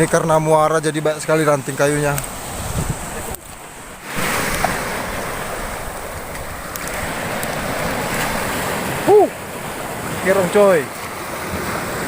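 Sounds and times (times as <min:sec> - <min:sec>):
sea surf washing on shore: 0:00.0 - 0:12.0
wind buffeting microphone: 0:01.7 - 0:10.3.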